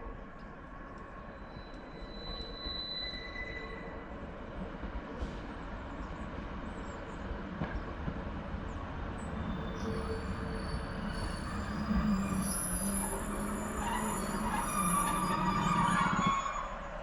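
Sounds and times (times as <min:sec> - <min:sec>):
brake and wheel squeal: 0:01.3 - 0:04.2, 0:09.2 - 0:17.0
diesel train rumbling: 0:03.6 - 0:17.0.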